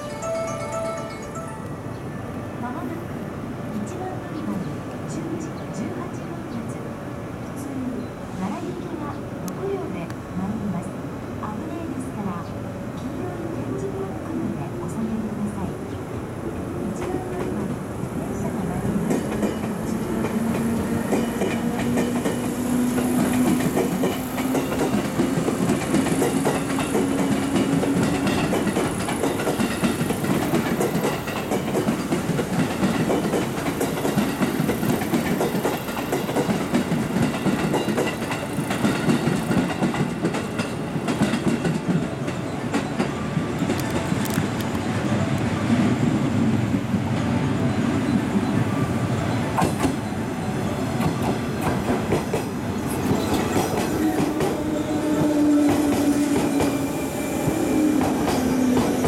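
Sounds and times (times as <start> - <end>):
train wheels clattering over joints: 19.0 - 44.7.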